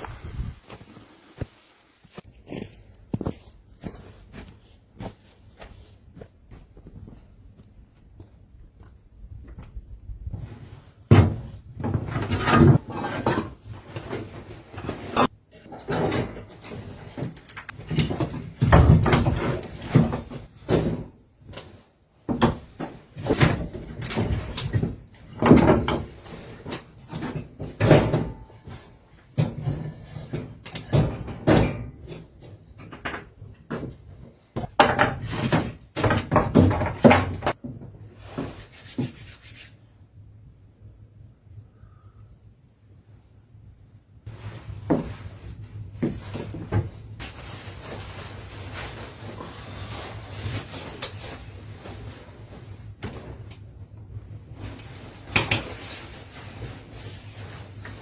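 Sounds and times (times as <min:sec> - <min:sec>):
rustling and scraping: 0:00.0 - 0:07.4, 0:10.3 - 0:39.8, 0:44.3 - 0:58.0
knocks and clunks: 0:29.3 - 0:37.9.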